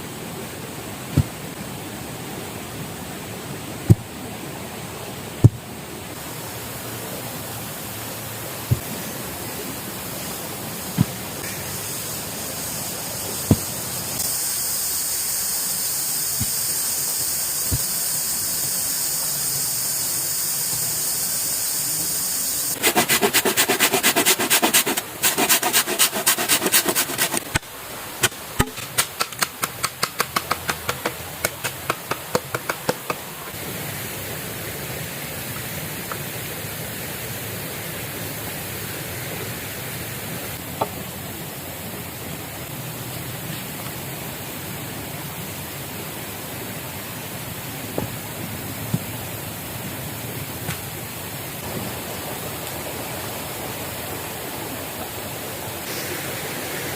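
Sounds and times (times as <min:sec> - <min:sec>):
river rushing: 0:00.0 - 0:14.4, 0:22.7 - 0:56.9
high hiss: 0:05.4 - 0:42.2, 0:44.2 - 0:56.9
rapid dense strokes: 0:22.7 - 0:27.6
sharp ticks: 0:28.8 - 0:33.2.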